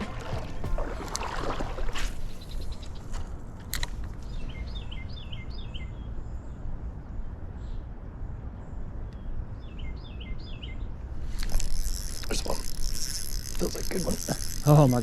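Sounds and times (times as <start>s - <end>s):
bird chirping: 4.2s - 11.0s.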